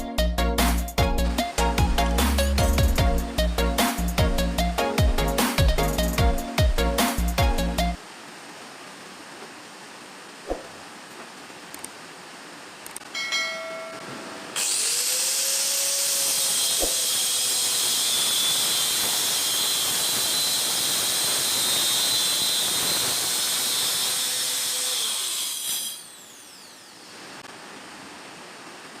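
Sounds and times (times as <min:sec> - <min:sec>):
angle grinder cutting: 0:14.5 - 0:27.1.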